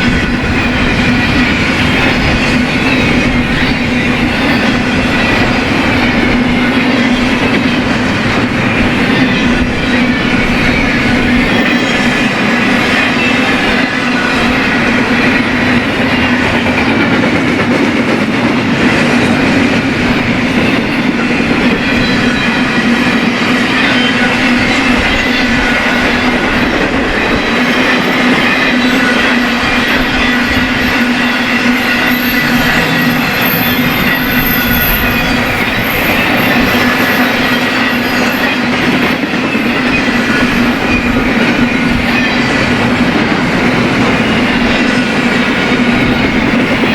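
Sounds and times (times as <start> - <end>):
freight train cars rolling past: 0.0 - 46.9
faint high wheel squeal: 20.2 - 46.9.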